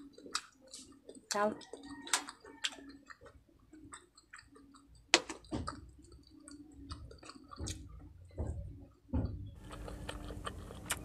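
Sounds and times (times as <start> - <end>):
close chewing with wet mouth clicks: 0.0 - 8.0, 9.6 - 11.0.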